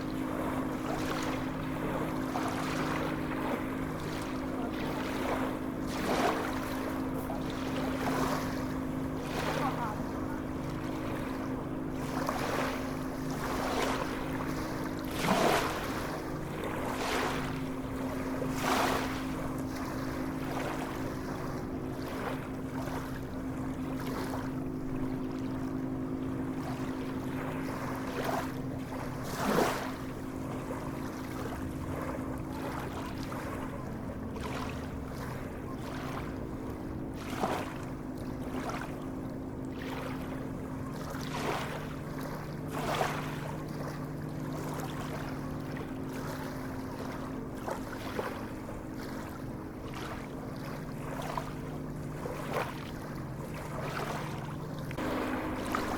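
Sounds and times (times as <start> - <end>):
sea waves lapping and splashing: 0.0 - 55.9
steady low hum: 0.0 - 55.9.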